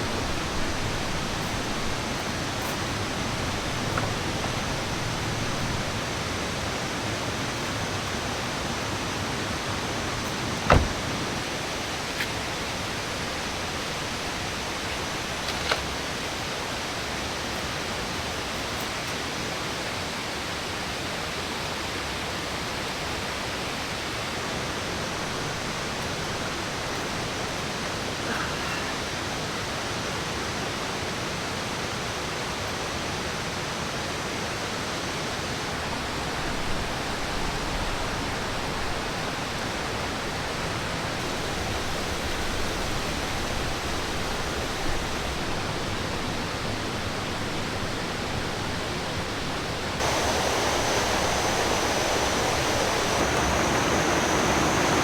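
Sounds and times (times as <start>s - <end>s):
waterfall and stream rushing: 49.5s - 55.0s.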